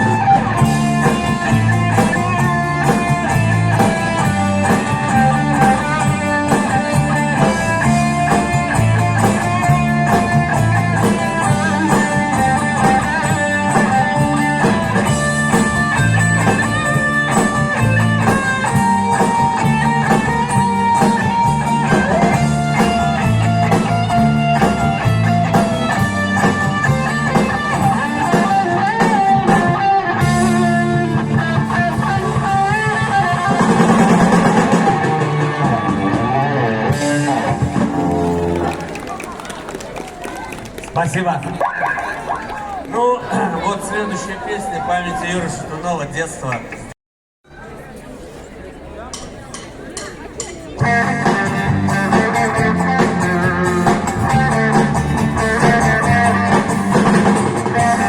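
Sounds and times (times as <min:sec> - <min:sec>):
steady drum beat: 0:00.0 - 0:38.9, 0:50.0 - 0:58.0
electric guitar melody: 0:00.0 - 0:39.0, 0:50.8 - 0:58.0
bass guitar: 0:00.0 - 0:39.5, 0:50.7 - 0:58.0.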